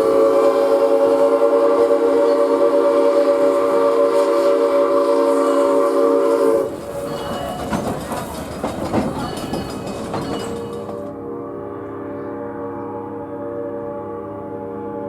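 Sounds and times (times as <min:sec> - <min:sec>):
steam locomotive whistle: 0:00.0 - 0:08.0, 0:09.2 - 0:15.0
train running noise: 0:00.0 - 0:15.0.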